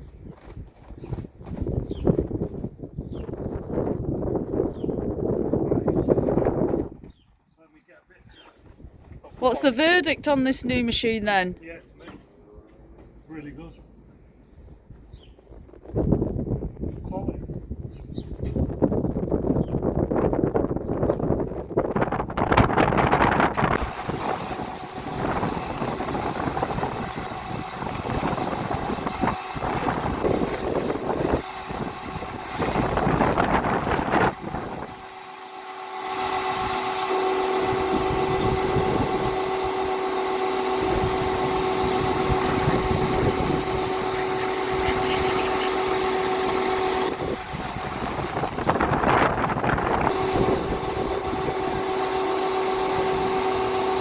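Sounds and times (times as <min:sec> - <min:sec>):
pressure washer motor hum: 0:22.7 - 0:54.0
water spraying: 0:23.8 - 0:54.0.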